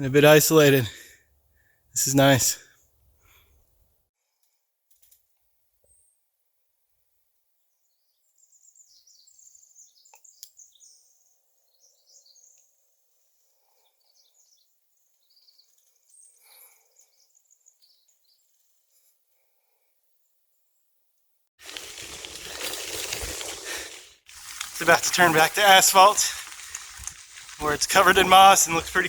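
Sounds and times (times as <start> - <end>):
small birds chirping: 7.8 - 19.1, 24.3 - 29.0.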